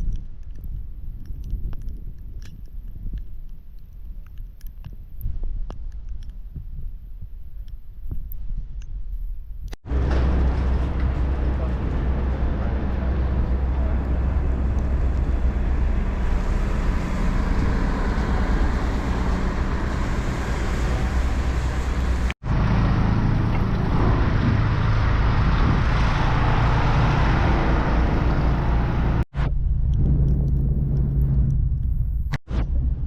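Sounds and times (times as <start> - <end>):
city traffic rumble: 9.7 - 33.0.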